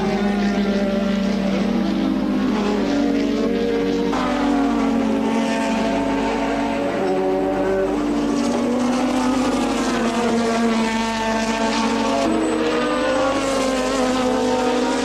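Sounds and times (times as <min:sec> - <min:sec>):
racing car engine: 0:00.0 - 0:15.0.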